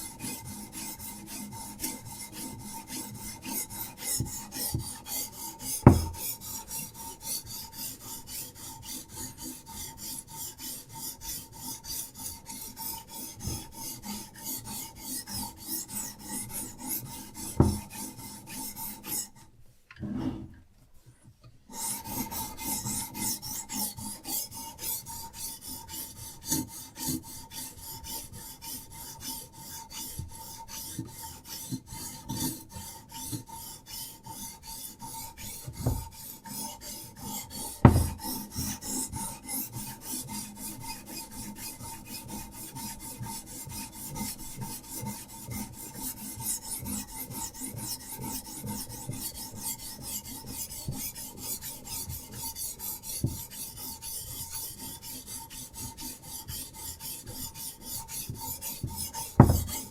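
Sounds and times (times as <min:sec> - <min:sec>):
sharp knocks: 0:17.6 - 0:17.8, 0:37.9 - 0:38.2, 0:59.4 - 0:59.9
sharpening stone scraping knife: 0:57.0 - 0:59.9.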